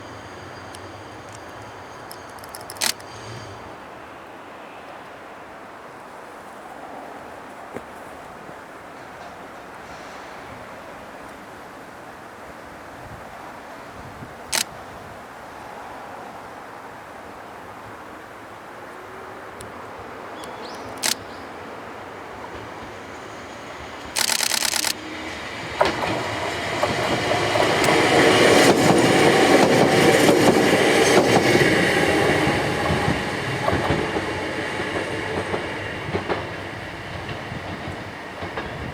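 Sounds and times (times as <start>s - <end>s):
train wheels clacking over rail joints: 0.6s - 3.8s, 22.4s - 38.9s.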